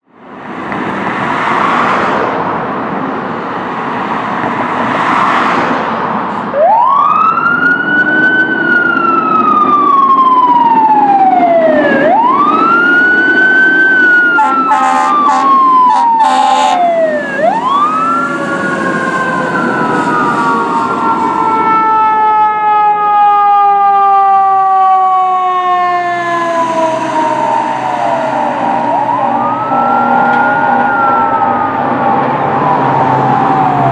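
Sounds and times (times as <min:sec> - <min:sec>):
heavy vehicle noise: 0:00.0 - 0:33.9
fire engine sirens wailing: 0:06.4 - 0:33.9
short horn blasts: 0:14.4 - 0:17.9.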